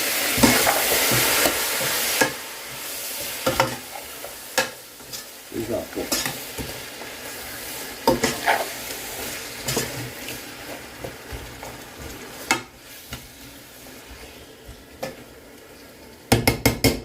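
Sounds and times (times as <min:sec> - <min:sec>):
chicken sizzling in a pan: 0:00.0 - 0:17.0
utensil scraping a pan: 0:07.4 - 0:14.4.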